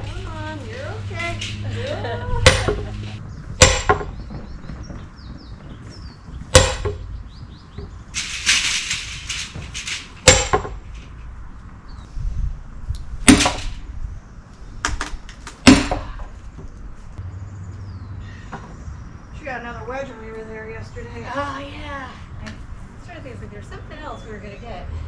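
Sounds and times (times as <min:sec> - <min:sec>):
sledgehammer striking steel wedge: 0:01.2 - 0:04.2, 0:06.5 - 0:07.2, 0:08.2 - 0:11.1, 0:13.2 - 0:13.9, 0:15.6 - 0:16.2.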